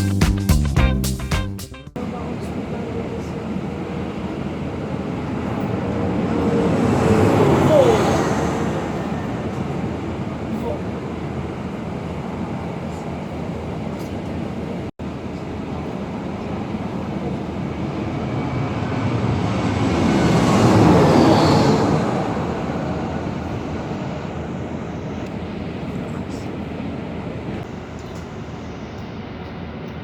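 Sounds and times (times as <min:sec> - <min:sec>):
bus engine and road noise: 0:01.9 - 0:28.2
rushing pass-by with whistle: 0:04.4 - 0:12.0, 0:17.6 - 0:25.2.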